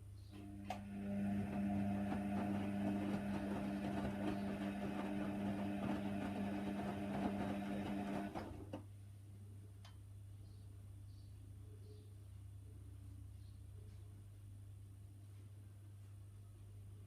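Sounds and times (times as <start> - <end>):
washer dryer humming: 0.4 - 8.8.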